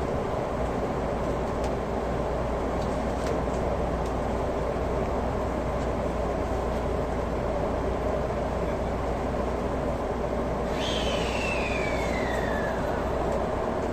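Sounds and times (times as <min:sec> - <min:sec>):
train carriage rumbling: 0:00.0 - 0:13.9.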